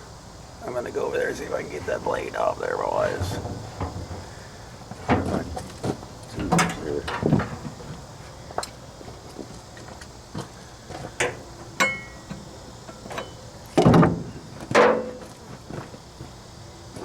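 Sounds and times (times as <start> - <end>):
heavy metal clunks: 3.1 - 8.0
metallic ring: 11.8 - 12.3.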